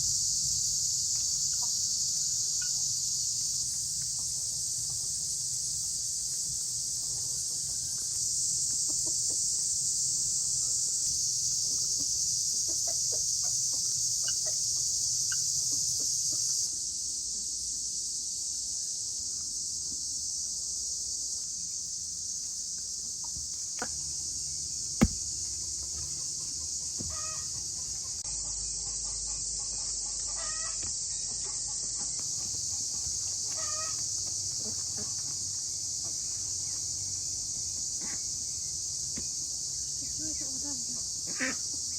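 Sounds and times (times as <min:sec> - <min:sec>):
insects chorus: 0:00.0 - 0:41.9
chicken clucking: 0:08.7 - 0:09.5, 0:11.7 - 0:16.6
sharp knock: 0:25.0 - 0:25.3.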